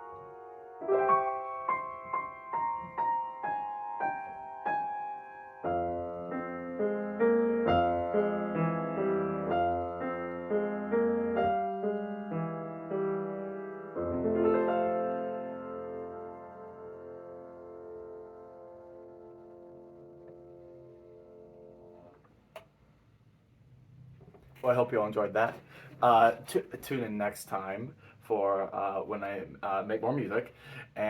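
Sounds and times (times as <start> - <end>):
soft ambient piano piece: 0.0 - 22.2.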